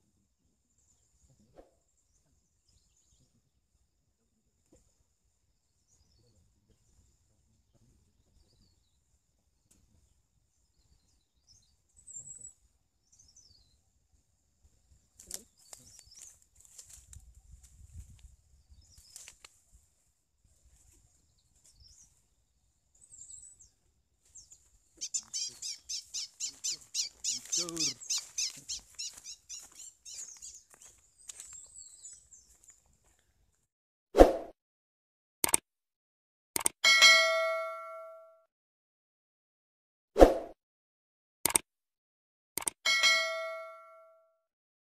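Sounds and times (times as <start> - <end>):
small birds chirping: 5.6 - 13.8, 14.8 - 19.6, 20.5 - 33.3
sharp crackling rustles: 15.2 - 17.2, 18.9 - 19.6, 24.4 - 31.7
small bird chirping sharply: 24.4 - 32.5.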